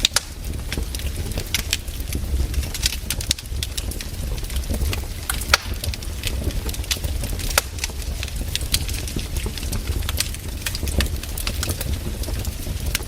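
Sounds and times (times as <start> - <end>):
firewood crackling and popping: 0.0 - 13.0
low steady rumble: 0.0 - 13.0.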